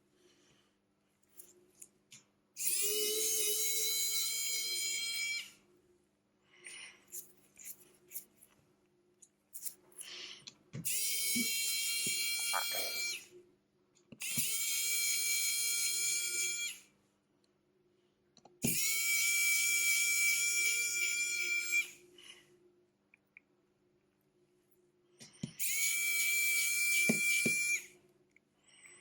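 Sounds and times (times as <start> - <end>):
small electric tool motor whining: 2.6 - 5.6, 10.9 - 13.3, 14.2 - 16.8, 18.6 - 22.0, 25.6 - 27.9.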